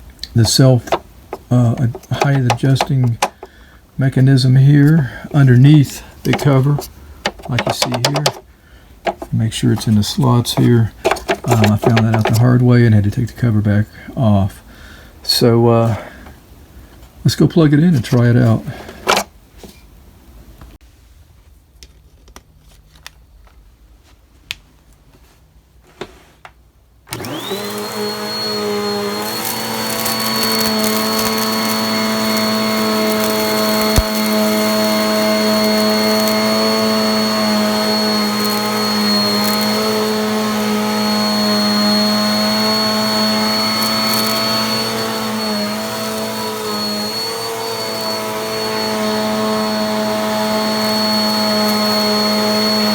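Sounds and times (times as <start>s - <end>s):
vacuum cleaner motor whine: 0.2s - 3.5s, 27.1s - 52.9s
quiet clicks and knocks: 7.2s - 9.3s.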